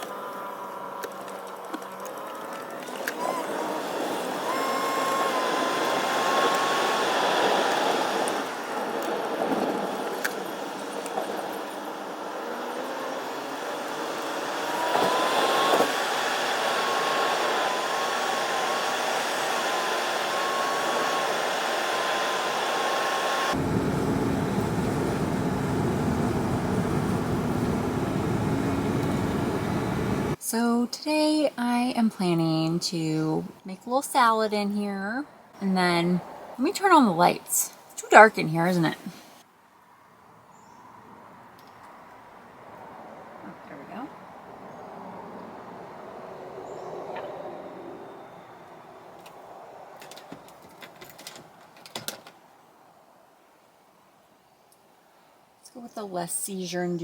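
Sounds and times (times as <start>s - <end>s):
road and engine noise: 2.0s - 30.4s, 38.4s - 52.5s
faint wavering whine: 23.5s - 30.4s
deep steady rumble: 23.6s - 30.4s.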